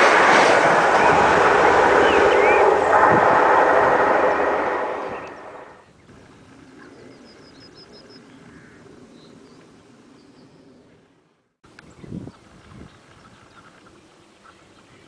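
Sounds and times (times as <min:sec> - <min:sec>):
train passing: 0:00.0 - 0:05.9.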